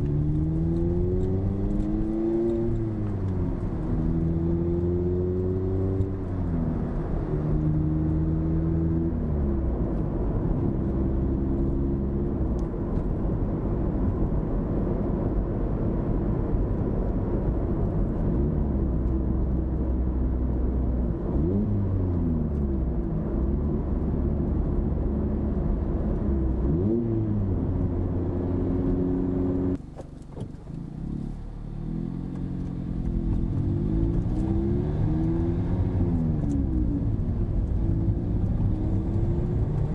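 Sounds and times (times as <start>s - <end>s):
car engine revving through exhaust: 0.0s - 9.8s, 18.3s - 29.8s, 30.8s - 39.9s.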